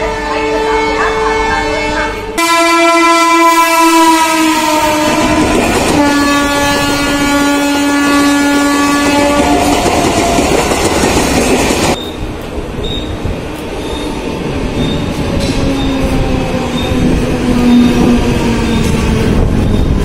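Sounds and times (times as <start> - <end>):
train horn blasts: 0.0 - 9.8
moving train rumble and clatter: 3.4 - 20.0.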